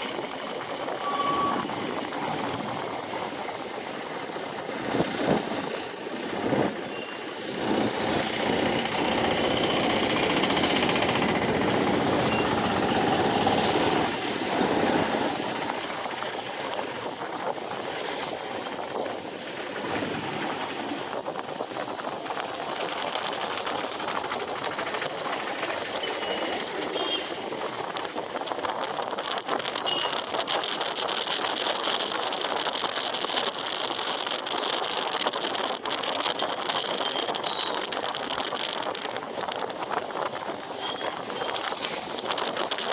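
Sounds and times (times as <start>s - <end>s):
road and wind noise: 0.0s - 42.9s
motorcycle engine running: 4.7s - 27.5s.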